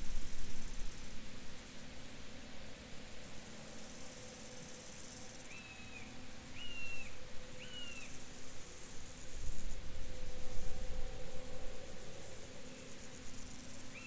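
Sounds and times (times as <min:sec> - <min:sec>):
insects and crickets hissing: 0:00.0 - 0:14.0.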